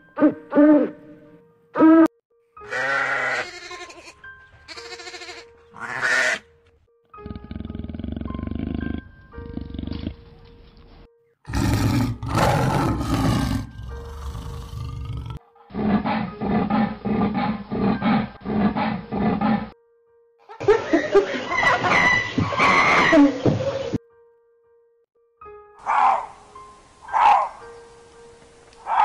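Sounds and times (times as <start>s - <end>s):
lion roaring: 7.2s - 10.2s, 11.5s - 19.7s.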